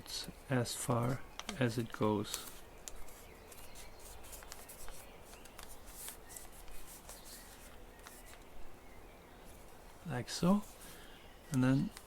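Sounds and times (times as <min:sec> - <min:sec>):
paper rustling and crackling: 0:01.0 - 0:08.5.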